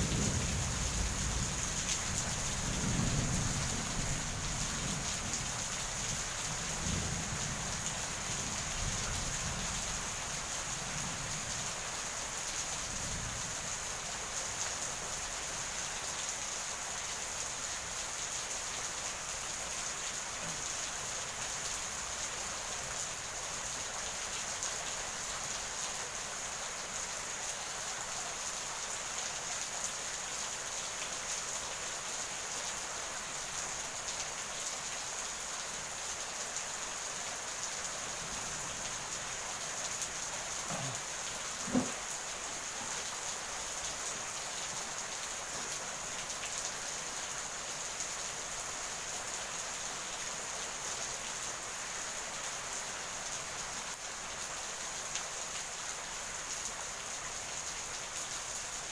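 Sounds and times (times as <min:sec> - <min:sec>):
low thunder rumble: 0:00.0 - 0:05.6
heavy rain pouring: 0:00.0 - 0:58.9.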